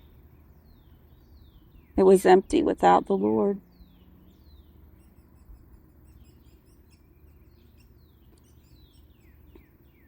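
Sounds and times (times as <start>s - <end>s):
faint bird chirps: 3.6s - 10.0s.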